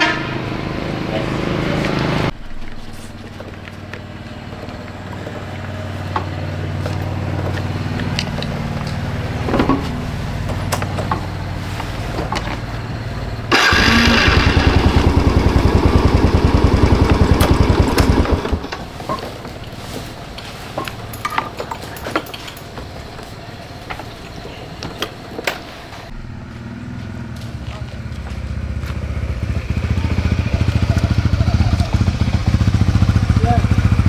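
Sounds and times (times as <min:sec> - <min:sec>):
motorcycle engine idling: 0:00.0 - 0:19.9, 0:26.1 - 0:34.0
loud pulsing machine: 0:13.5 - 0:19.2.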